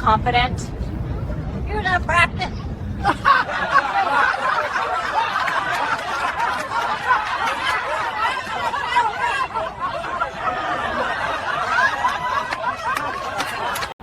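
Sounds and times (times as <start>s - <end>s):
crowd laughing: 2.6s - 14.0s.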